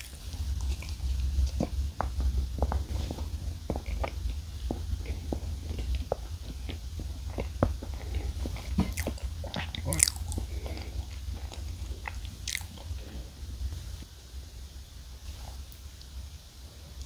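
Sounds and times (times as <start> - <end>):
low steady hum: 0.0 - 17.0
wet chewing mouth clicks: 5.0 - 13.0.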